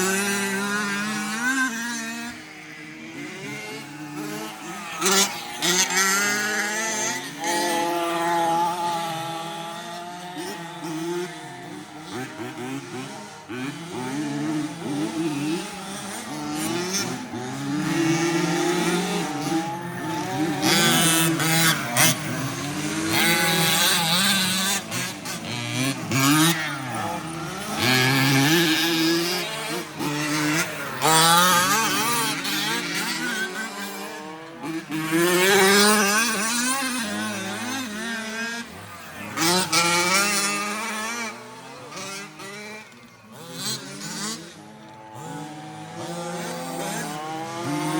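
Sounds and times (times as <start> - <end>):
tyres on dirt: 12.2 - 47.9.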